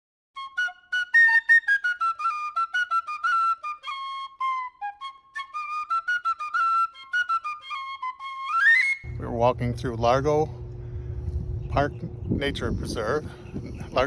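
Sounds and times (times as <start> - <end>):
flute-like melody: 0.4 - 9.2.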